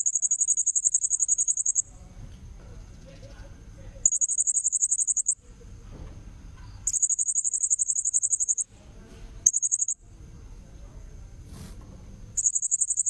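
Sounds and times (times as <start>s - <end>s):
parrot chittering trills: 0.0s - 1.8s, 4.1s - 5.4s, 6.8s - 8.6s, 12.4s - 13.0s.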